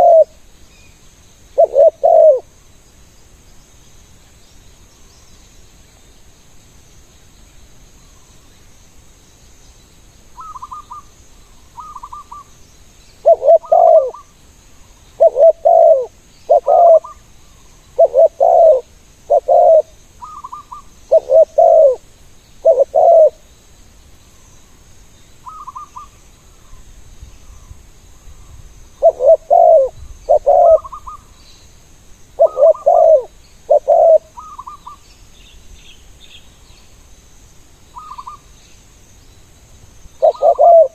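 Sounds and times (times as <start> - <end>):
doves cooing loudly: 0.0 - 0.3, 1.6 - 2.4, 13.2 - 14.2, 15.2 - 17.2, 18.0 - 22.0, 22.6 - 23.4, 29.0 - 31.2, 32.4 - 34.8, 40.2 - 40.9
faint high coos: 0.0 - 0.4, 1.6 - 2.5, 13.2 - 14.2, 15.2 - 17.2, 18.0 - 22.0, 29.0 - 31.1, 32.4 - 34.8, 40.2 - 40.9.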